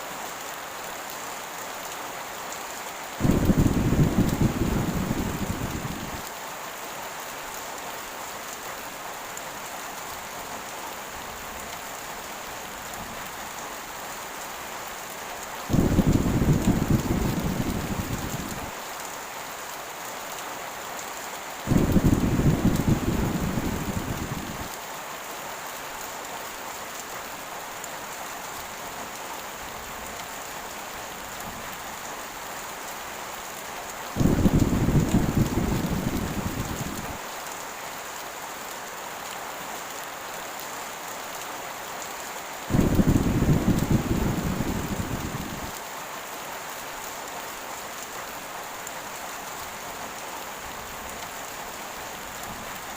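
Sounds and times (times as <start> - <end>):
heavy rain: 0.0 - 52.9
thunder rolling: 3.2 - 6.2, 15.7 - 18.7, 21.7 - 24.7, 34.2 - 37.2, 42.7 - 45.7.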